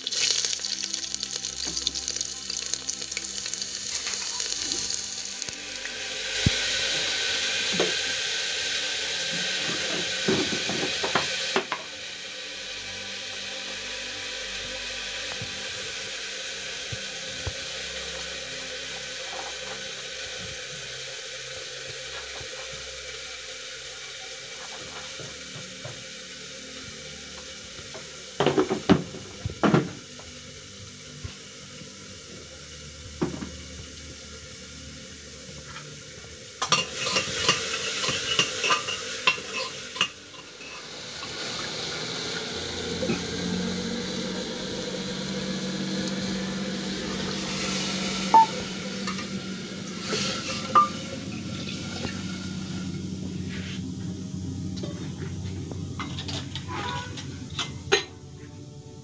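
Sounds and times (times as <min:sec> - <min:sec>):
food sizzling in a pot: 0:00.0 - 0:59.0
metal spoon scraping a pot: 0:36.6 - 0:41.0.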